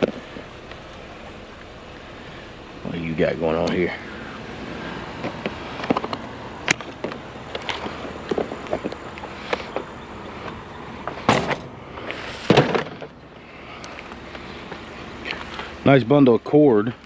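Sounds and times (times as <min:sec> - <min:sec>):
rough scraping noises: 0:02.2 - 0:15.9
scrap clicking and knocking: 0:05.2 - 0:11.7.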